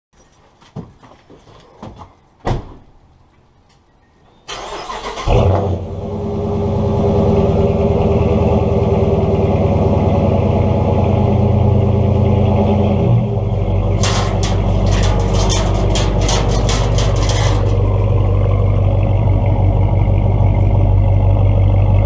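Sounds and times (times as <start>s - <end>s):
car engine starting and idling: 4.5s - 22.0s.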